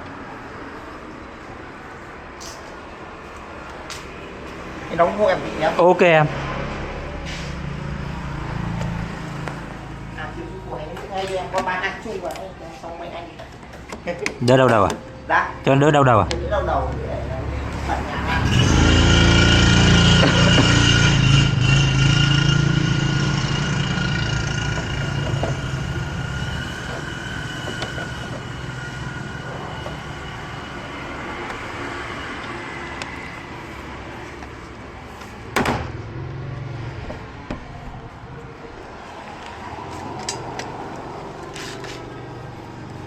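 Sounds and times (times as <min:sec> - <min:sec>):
vehicle engine running: 0:16.7 - 0:27.1
sharp knock: 0:35.6 - 0:36.1.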